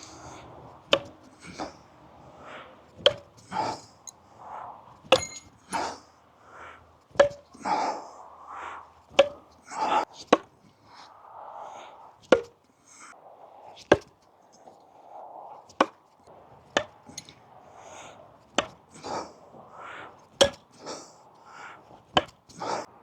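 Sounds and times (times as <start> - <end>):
soft noises: 0.0 - 23.0
knives hitting a target: 5.1 - 5.5.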